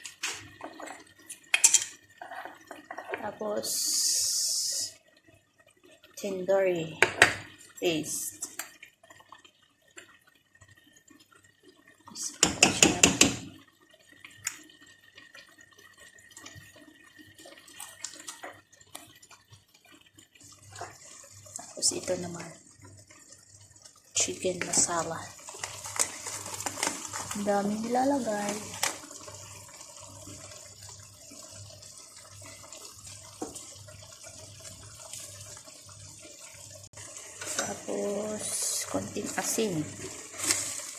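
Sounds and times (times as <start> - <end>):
sauce bubbling in a pan: 0.0 - 40.9
small pops and wet ticks: 14.3 - 14.7, 17.8 - 19.1.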